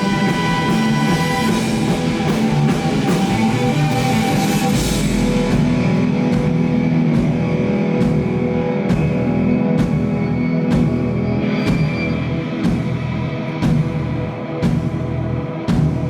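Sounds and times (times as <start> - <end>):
drum hits: 0.0 - 9.2, 13.6 - 15.0
rock band playing live: 0.0 - 16.0
sustained guitar chords: 0.0 - 16.0.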